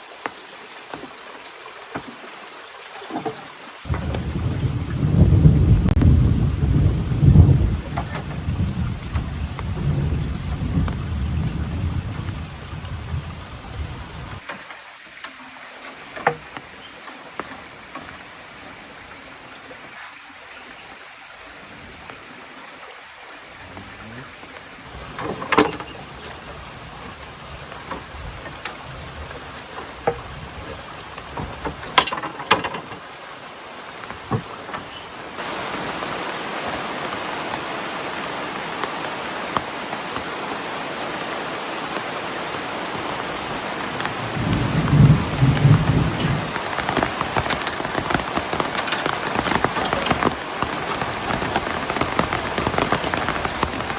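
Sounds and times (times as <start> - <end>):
heavy rain falling: 0.0 - 53.9
low rumble of thunder: 3.9 - 14.4, 43.9 - 48.6.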